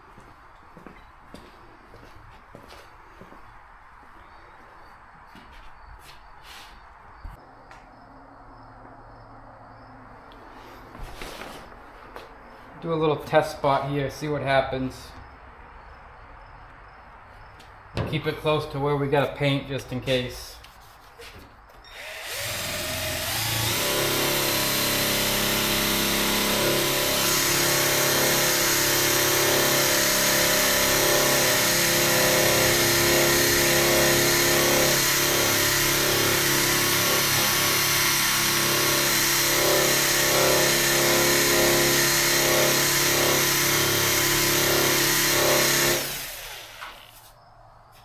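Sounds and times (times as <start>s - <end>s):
electric polisher running: 21.9s - 47.1s.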